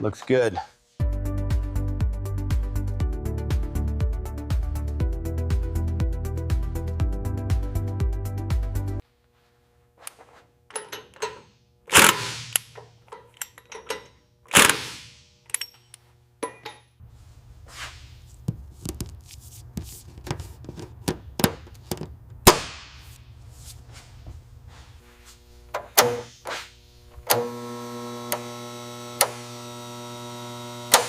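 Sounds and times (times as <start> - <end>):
steady low hum: 9.0 - 30.8
metallic clicks and knocks: 10.7 - 14.8.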